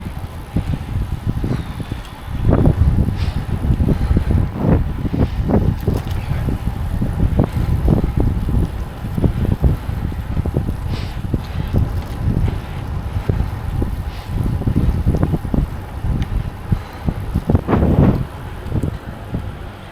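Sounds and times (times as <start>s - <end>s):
road traffic noise: 0.0s - 19.9s
wind buffeting microphone: 0.0s - 19.9s.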